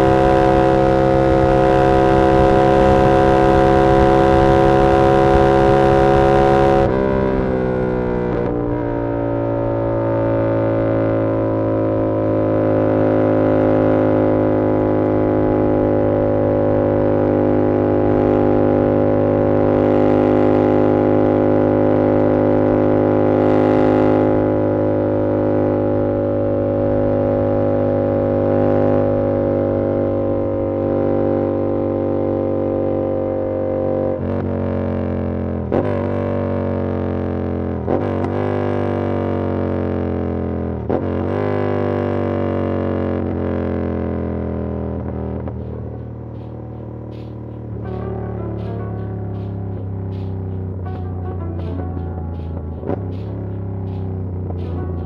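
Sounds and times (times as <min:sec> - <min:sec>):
motorcycle engine droning: 0:00.0 - 0:30.5, 0:44.8 - 0:55.0.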